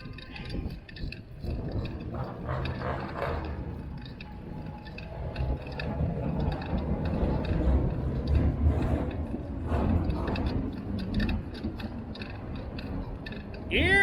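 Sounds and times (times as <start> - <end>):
small rattling clicks: 0.0 - 13.7
bicycle rumbling: 0.0 - 14.0
street traffic: 0.0 - 14.0.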